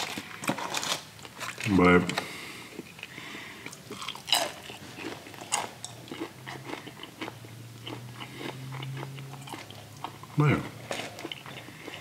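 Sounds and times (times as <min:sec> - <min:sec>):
chewing crispy fried chicken: 0:02.8 - 0:12.0.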